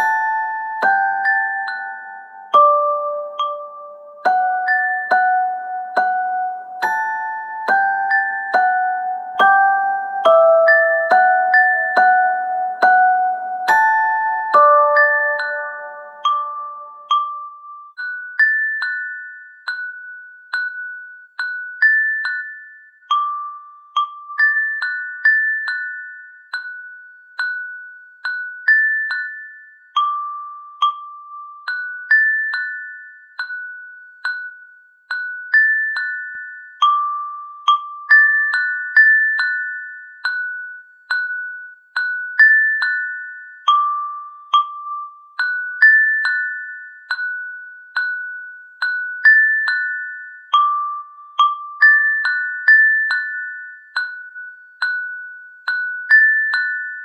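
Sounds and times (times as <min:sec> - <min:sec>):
bell-like melody notes: 0:00.0 - 0:18.2.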